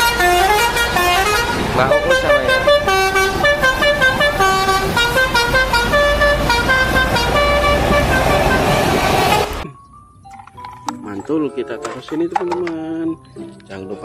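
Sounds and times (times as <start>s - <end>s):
multi-tone bus horn melody: 0.0s - 9.6s.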